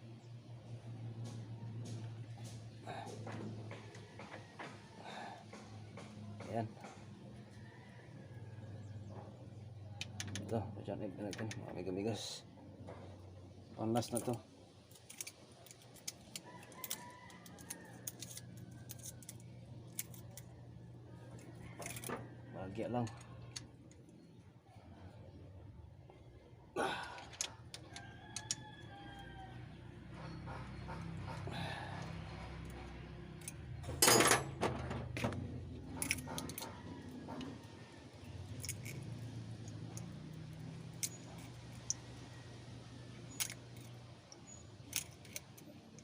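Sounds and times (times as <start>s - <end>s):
metallic tool clicks and taps: 10.0s - 10.5s, 38.5s - 42.1s, 43.3s - 46.0s
metal tools rattling on engine parts: 13.8s - 20.5s, 21.4s - 23.8s, 30.1s - 46.0s.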